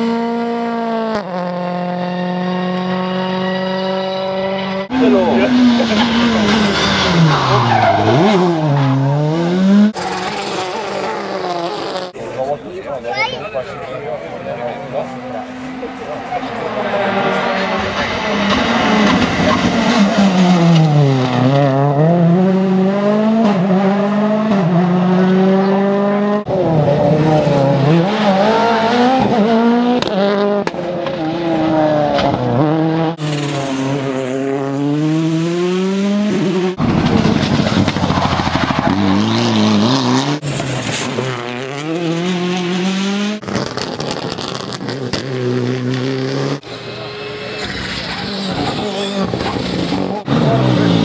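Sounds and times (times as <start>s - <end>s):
rally car engines passing: 0.0s - 51.0s
tyre squeal: 47.5s - 50.2s.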